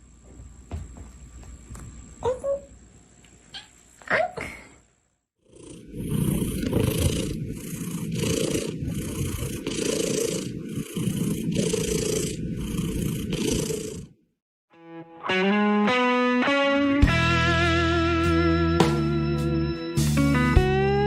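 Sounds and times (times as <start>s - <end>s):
cat purring: 5.4s - 14.2s.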